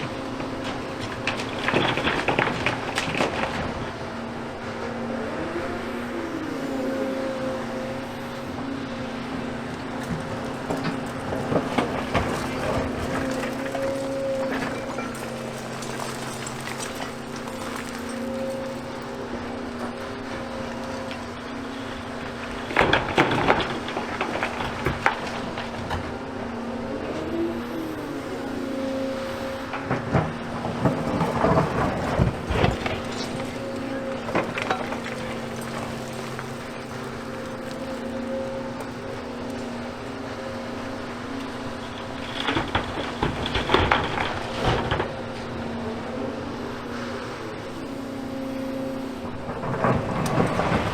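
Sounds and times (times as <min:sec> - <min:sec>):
rubble clattering and cracking: 0:00.0 - 0:04.0, 0:09.8 - 0:20.0, 0:22.2 - 0:26.1, 0:29.8 - 0:45.3, 0:49.4 - 0:50.9
excavator engine humming: 0:00.0 - 0:50.9.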